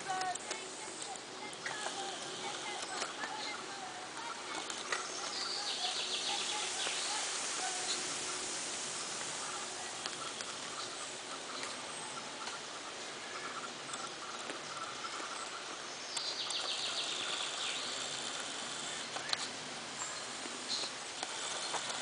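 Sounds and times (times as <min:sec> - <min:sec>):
high rapid bird trill: 0:00.0 - 0:19.4
birds calling: 0:00.0 - 0:22.0.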